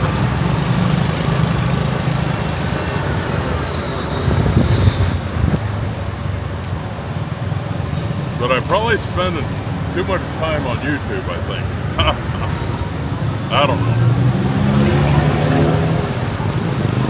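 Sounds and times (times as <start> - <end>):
motorbike engine: 0.0 - 3.8, 11.3 - 17.0
road noise: 0.0 - 17.0.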